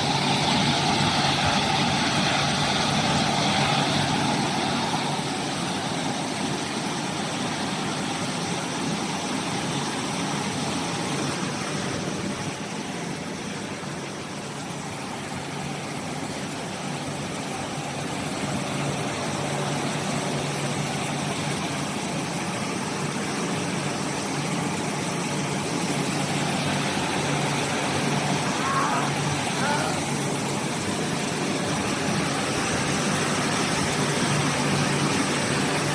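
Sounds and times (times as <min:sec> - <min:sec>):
washing machine rushing: 0:00.0 - 0:35.9.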